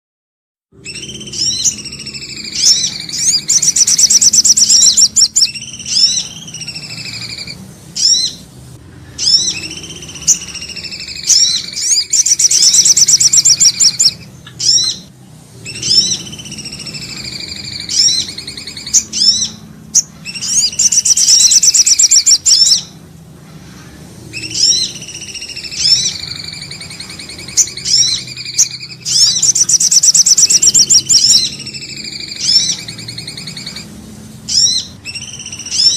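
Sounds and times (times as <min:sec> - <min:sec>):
bird whistle and chirps: 0:00.8 - 0:08.5, 0:09.1 - 0:23.0, 0:24.3 - 0:35.9
fast high bird trill: 0:00.8 - 0:08.5, 0:09.1 - 0:23.0, 0:24.3 - 0:35.9.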